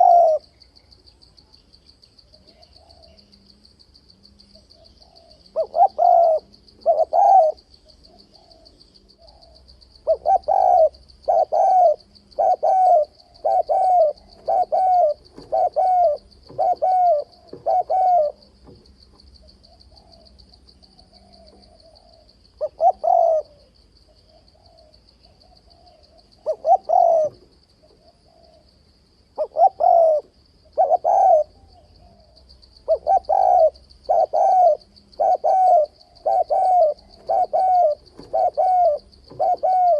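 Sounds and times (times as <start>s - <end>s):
dove cooing: 0.0s - 0.5s, 2.3s - 3.5s, 4.3s - 39.9s
high insect trill: 0.0s - 39.9s.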